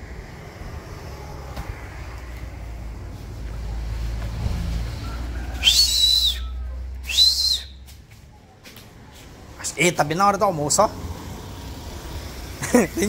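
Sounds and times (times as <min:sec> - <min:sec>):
car engine rumble: 0:00.0 - 0:13.0
loud high whistles: 0:05.0 - 0:07.8.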